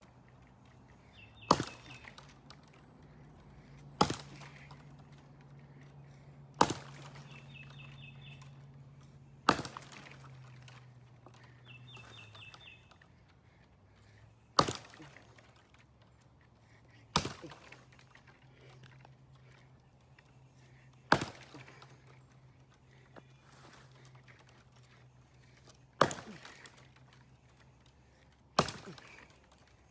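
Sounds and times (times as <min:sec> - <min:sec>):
axe chopping wood: 0:01.1 - 0:13.6, 0:14.5 - 0:15.8, 0:17.1 - 0:18.6, 0:20.7 - 0:22.1, 0:23.4 - 0:27.2, 0:28.2 - 0:29.8.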